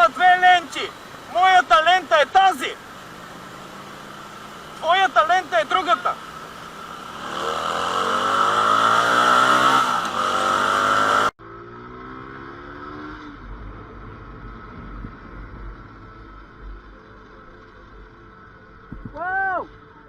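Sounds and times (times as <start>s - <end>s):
motorcycle engine accelerating: 3.0s - 17.8s
wind rumbling on microphone: 13.4s - 16.4s, 18.9s - 19.2s.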